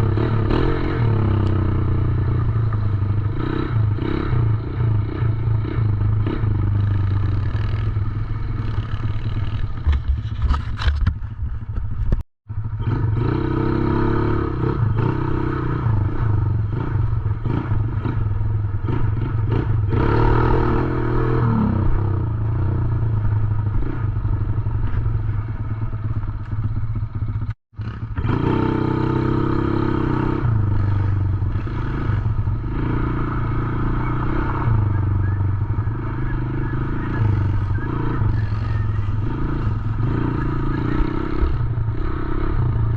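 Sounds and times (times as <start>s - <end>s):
dirt bike engine running: 0.0s - 42.9s.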